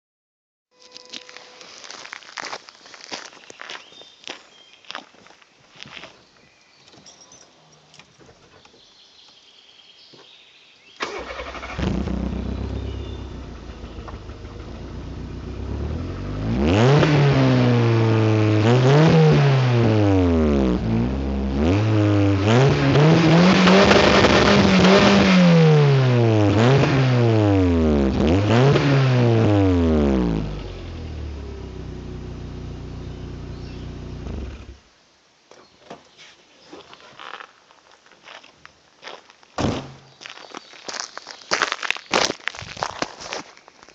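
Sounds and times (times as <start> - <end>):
car engine idling and revving: 11.2 - 34.8.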